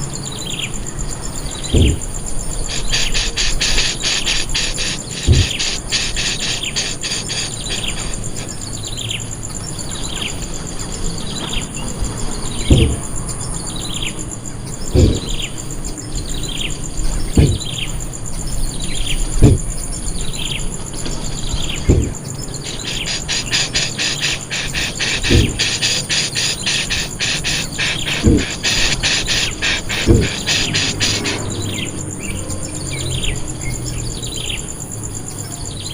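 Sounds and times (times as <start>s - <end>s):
high insect hum: 0.0s - 35.9s
low dull thumps: 1.6s - 2.5s, 5.2s - 5.9s, 12.6s - 13.2s, 14.9s - 15.5s, 17.2s - 17.8s, 19.3s - 19.8s, 21.8s - 22.3s, 25.2s - 25.7s, 28.2s - 28.5s, 30.0s - 30.5s
bird down-slurred notes: 1.6s - 8.4s, 12.6s - 13.2s, 14.9s - 15.6s, 21.4s - 31.7s.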